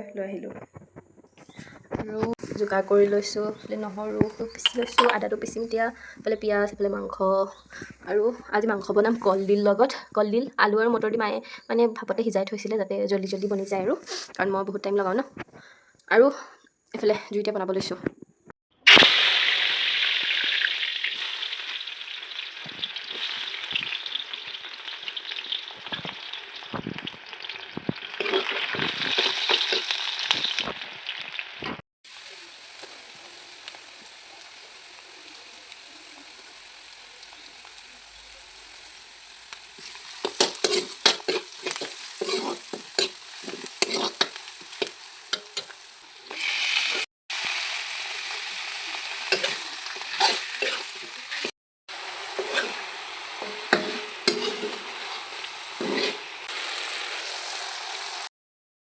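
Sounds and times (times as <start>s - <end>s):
food sizzling in hot oil: 18.8s - 58.3s
spatula scraping a pan: 28.1s - 30.6s, 39.7s - 47.1s, 49.2s - 51.5s, 52.2s - 56.6s.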